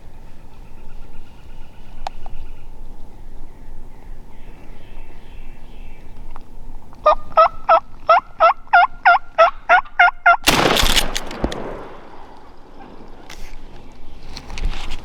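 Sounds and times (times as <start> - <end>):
wild turkey yelping: 7.0 - 10.4
shotgun blast: 10.4 - 12.8.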